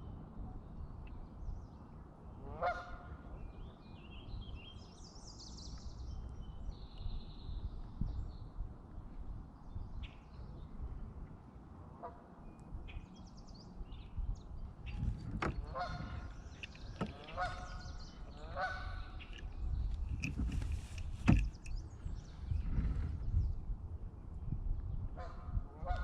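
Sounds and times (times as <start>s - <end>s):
steady low rumble: 12.7s - 26.0s
geese honking: 15.6s - 16.3s, 17.0s - 19.2s.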